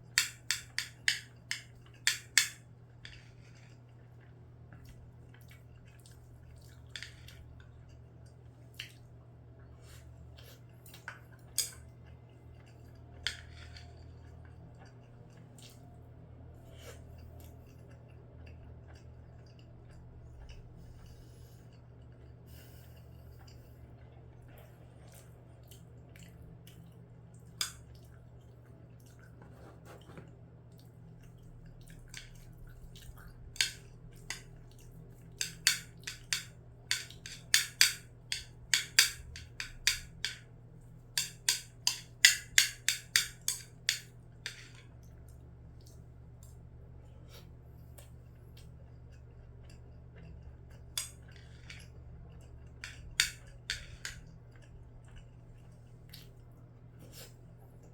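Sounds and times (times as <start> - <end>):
utensils clicking against a bowl: 0.1 - 2.6, 33.6 - 34.5, 35.3 - 40.4, 41.2 - 44.8, 52.8 - 54.2.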